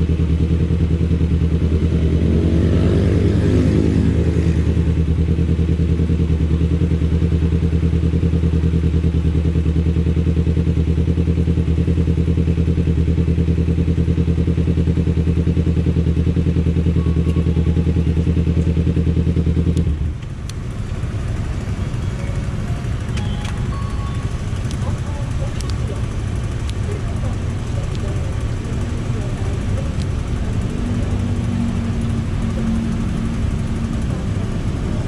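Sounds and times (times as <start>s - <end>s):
motorcycle engine running steadily: 0.0s - 35.0s
clicks: 22.3s - 26.8s.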